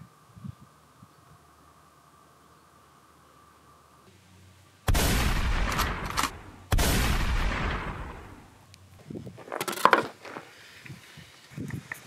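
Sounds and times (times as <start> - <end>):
loud booming bangs: 4.9 - 8.5.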